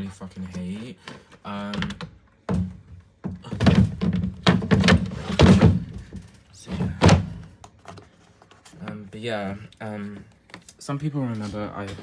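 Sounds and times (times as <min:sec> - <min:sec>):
knocks on plastic parts: 0:01.7 - 0:07.6.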